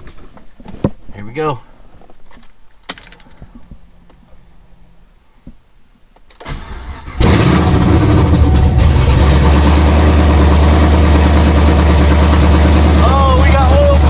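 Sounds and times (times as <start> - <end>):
engine cranking: 6.4 - 14.0
loud engine running: 6.8 - 14.0.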